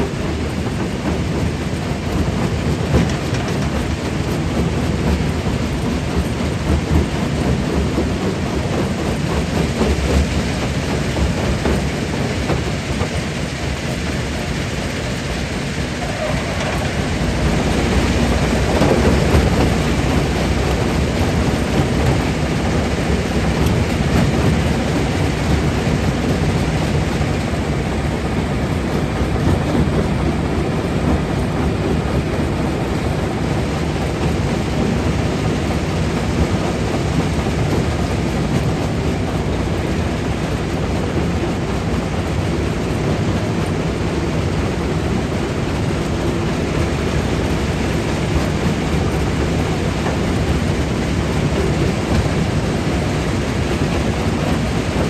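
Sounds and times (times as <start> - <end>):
jaw crusher rumbling: 14.4 - 25.0.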